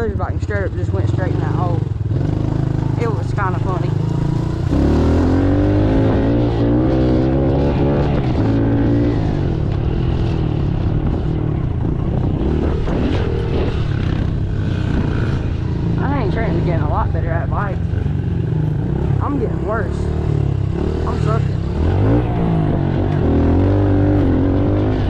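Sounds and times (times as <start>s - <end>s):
motorbike engine revving: 0.0s - 25.0s
wind on microphone: 5.1s - 17.8s.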